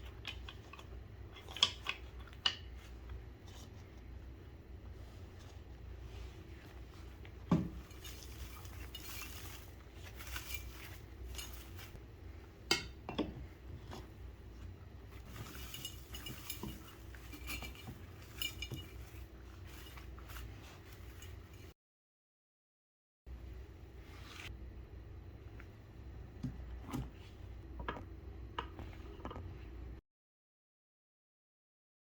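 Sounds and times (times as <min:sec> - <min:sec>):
small hard objects clinking: 0:07.7 - 0:12.0.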